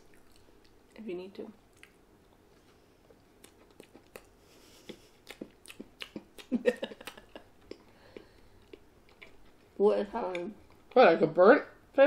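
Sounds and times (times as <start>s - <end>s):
chewing cookie: 0.0s - 1.0s, 1.6s - 11.0s
wet mouth clicks and smacks: 4.9s - 7.9s.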